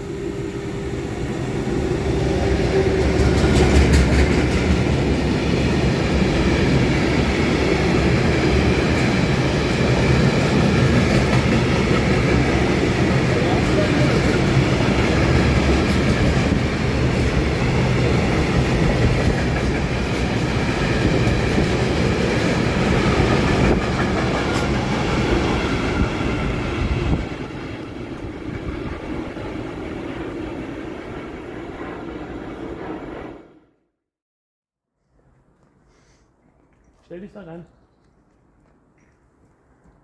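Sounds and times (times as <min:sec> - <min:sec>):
train low rumble: 0:00.0 - 0:33.6
freight train wagons clattering: 0:02.5 - 0:28.8.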